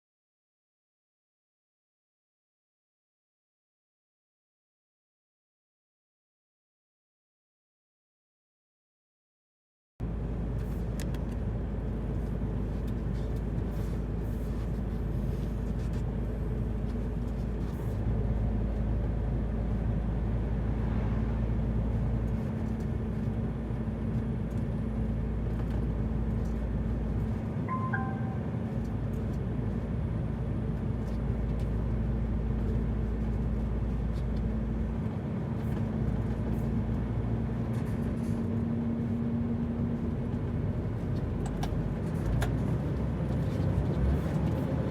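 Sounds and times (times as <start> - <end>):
falling four-note chime: 27.7 - 28.6.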